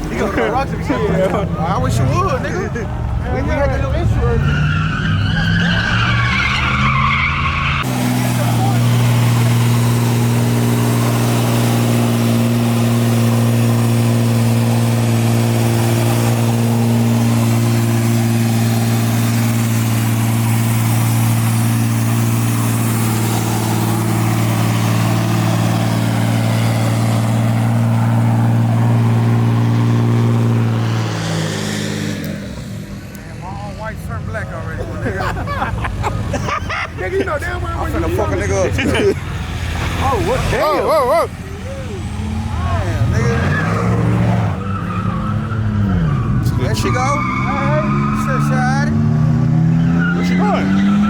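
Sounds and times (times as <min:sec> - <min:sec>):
engine revving high: 0:03.3 - 0:34.5, 0:37.7 - 0:51.0.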